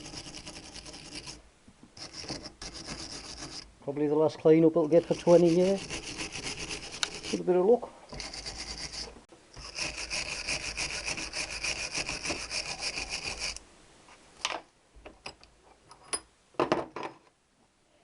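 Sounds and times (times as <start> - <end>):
wire brush rasping on metal: 0.0 - 1.4, 2.0 - 3.7, 4.8 - 13.6.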